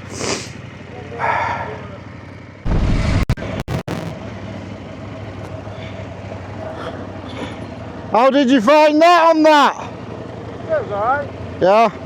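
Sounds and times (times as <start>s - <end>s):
trail bike engine idling: 0.0s - 2.6s, 4.3s - 12.0s
loud rush of noise: 2.7s - 4.2s.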